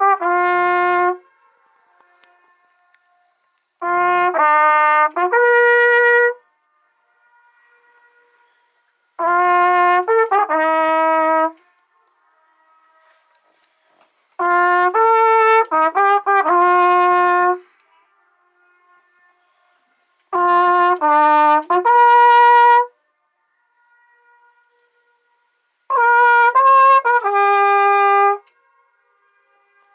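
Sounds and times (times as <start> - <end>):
trumpet playing held notes: 0.0 - 6.4, 7.4 - 11.8, 14.4 - 17.7, 20.2 - 23.0, 24.6 - 28.5
trumpet echo off rock walls: 0.0 - 23.0, 23.8 - 29.9.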